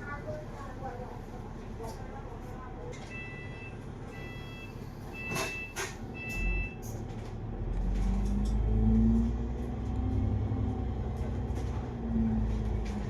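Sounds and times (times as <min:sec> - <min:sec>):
bus diesel engine rumble: 0:00.0 - 0:13.0
short electronic beeps: 0:03.1 - 0:06.8.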